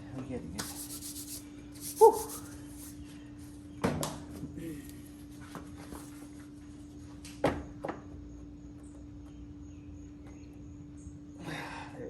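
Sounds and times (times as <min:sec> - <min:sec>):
steady hum: 0:00.0 - 0:03.8.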